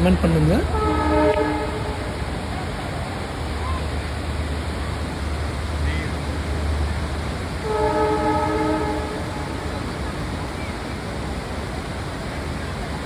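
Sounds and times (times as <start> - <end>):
waterfall rushing: 0.0 - 13.0
train horn chord: 0.1 - 2.7, 7.5 - 10.6.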